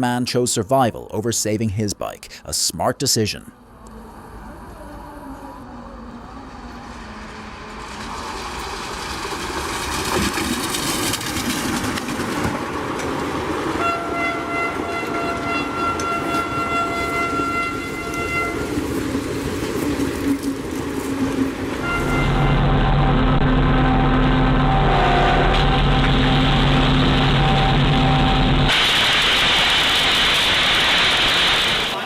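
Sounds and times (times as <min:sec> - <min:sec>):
train rushing past: 0:03.9 - 0:32.0
train horn blast: 0:13.7 - 0:19.0, 0:20.3 - 0:28.7
low steady drone: 0:21.8 - 0:28.7.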